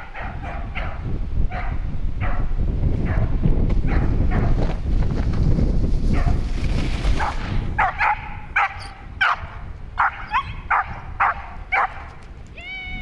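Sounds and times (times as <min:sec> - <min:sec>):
low wind rumble: 0:00.0 - 0:13.0
dog barking high yips: 0:07.8 - 0:12.1.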